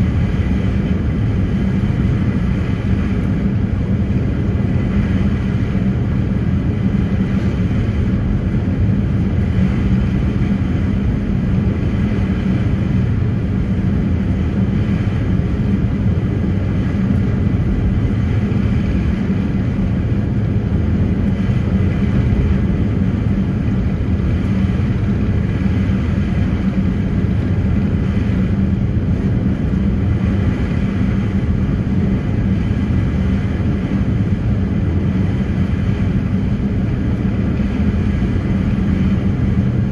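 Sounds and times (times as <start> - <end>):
ferry engine drone: 0.0 - 39.9
noisy water rush: 0.0 - 39.9.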